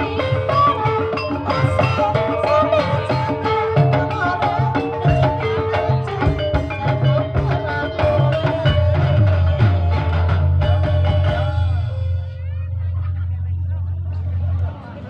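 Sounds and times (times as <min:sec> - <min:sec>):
drums beating: 0:00.0 - 0:14.8
tuned percussion melody: 0:00.0 - 0:15.0.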